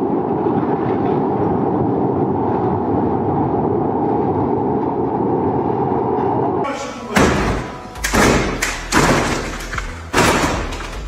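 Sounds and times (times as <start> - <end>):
machine rumbling: 0.0 - 11.0.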